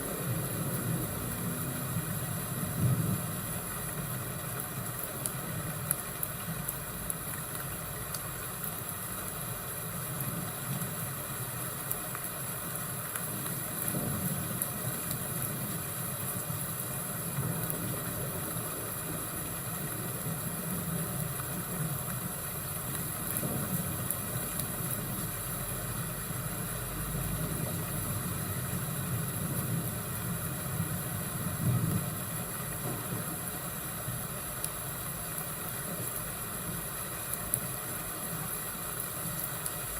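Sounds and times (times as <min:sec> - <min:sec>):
constant hiss: 0:00.0 - 0:39.9
fire crackles: 0:00.0 - 0:39.9
low thunder rumble: 0:27.0 - 0:33.6.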